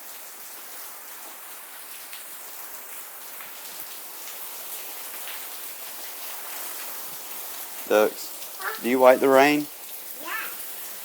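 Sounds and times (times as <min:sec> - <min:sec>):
steady rain hiss: 0:00.0 - 0:11.0
raindrops tapping: 0:05.1 - 0:11.0.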